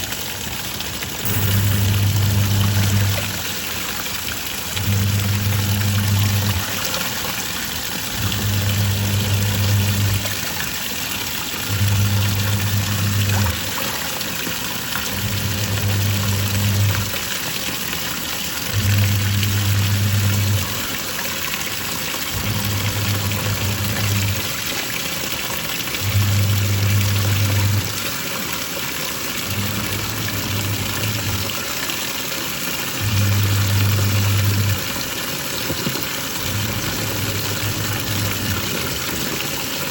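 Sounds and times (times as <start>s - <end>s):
washing machine motor humming: 0.0s - 39.9s
water sloshing: 1.1s - 17.2s.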